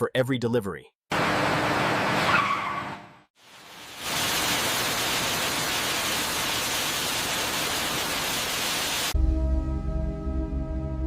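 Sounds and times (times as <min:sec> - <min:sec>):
steady hiss: 0:03.4 - 0:09.2.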